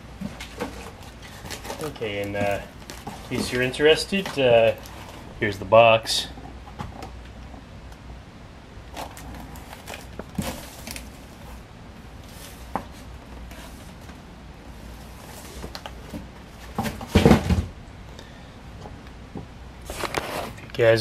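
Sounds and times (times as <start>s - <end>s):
cardboard box rustling: 0.2s - 5.3s, 8.9s - 14.1s.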